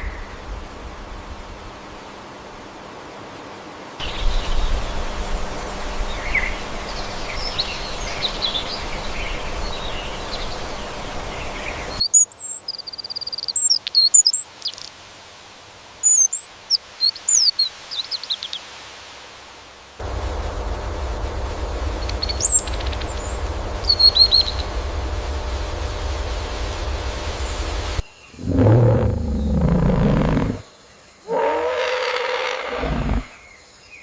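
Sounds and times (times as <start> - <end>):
outdoor hiss: 0.0 - 34.0
small bird chirps: 16.0 - 18.6.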